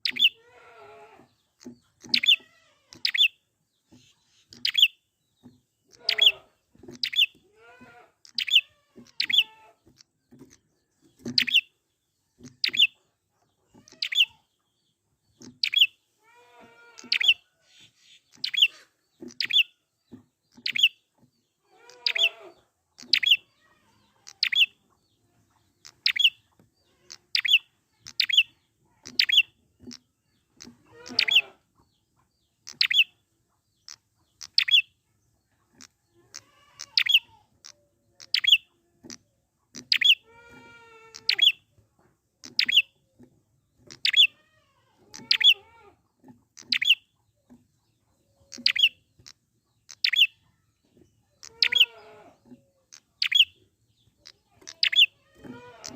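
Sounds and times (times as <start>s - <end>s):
lower wavering bird calls: 5.9s - 7.3s, 21.7s - 24.8s, 30.6s - 31.6s, 39.8s - 41.6s, 45.0s - 45.9s, 51.4s - 55.9s.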